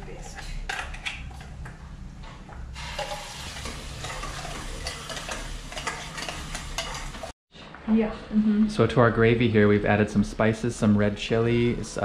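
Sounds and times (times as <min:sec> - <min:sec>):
paste sizzling in hot oil: 0:02.8 - 0:07.3
spoon stirring in pan: 0:03.0 - 0:07.3.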